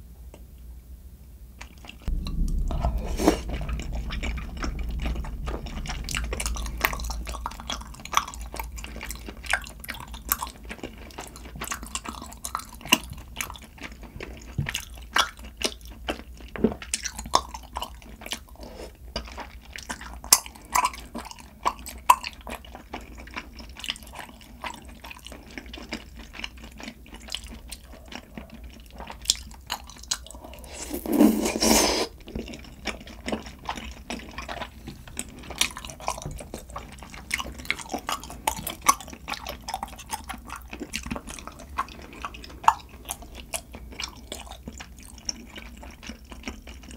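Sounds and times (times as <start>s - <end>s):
close chewing with wet smacks: 8.9s - 18.5s, 19.1s - 30.5s, 32.2s - 46.9s.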